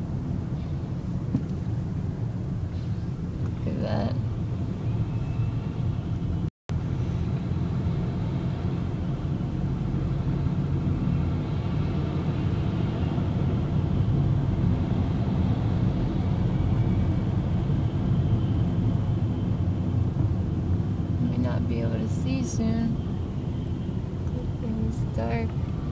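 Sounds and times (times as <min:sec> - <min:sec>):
car cabin road rumble: 0:00.0 - 0:25.9.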